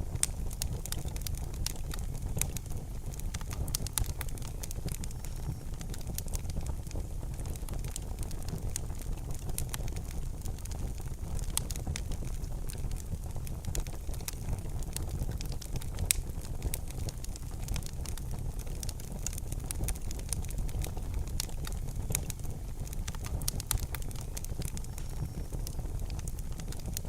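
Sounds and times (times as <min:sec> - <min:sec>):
wood fire crackling and popping: 0:00.0 - 0:27.0.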